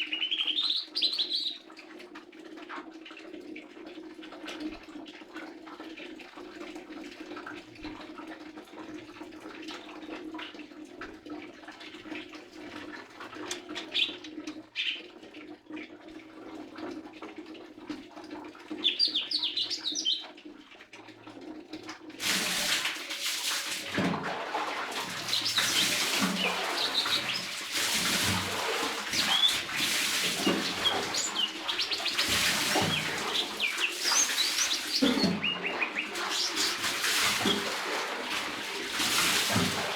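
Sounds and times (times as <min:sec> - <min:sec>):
bird chirping: 0:00.0 - 0:01.6, 0:13.8 - 0:14.2, 0:14.8 - 0:15.0, 0:18.8 - 0:20.3, 0:26.4 - 0:27.5, 0:30.8 - 0:32.3, 0:32.9 - 0:36.8
rushing water: 0:00.0 - 0:02.3, 0:03.9 - 0:39.9.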